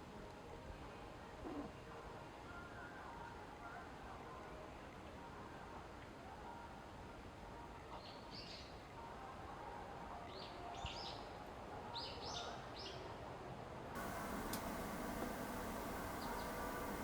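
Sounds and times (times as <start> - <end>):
faint background noise: 0.0 - 17.0
small bird chirping: 14.0 - 17.0.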